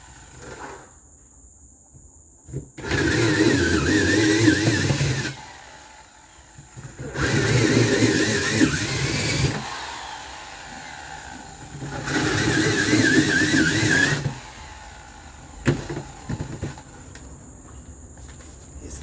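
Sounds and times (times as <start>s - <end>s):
electric drill whining: 2.8s - 17.1s.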